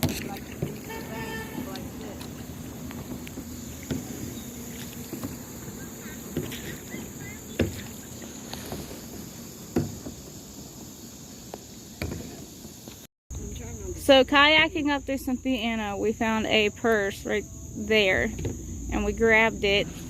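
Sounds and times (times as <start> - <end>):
paddle knocks: 0.0 - 10.4, 11.5 - 12.7
paddling water wash: 0.0 - 13.1.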